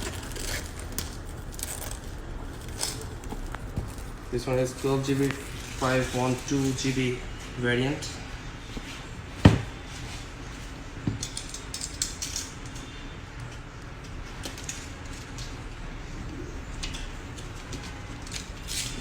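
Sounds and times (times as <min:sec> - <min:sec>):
packaging rustling and scraping: 0:00.0 - 0:07.1.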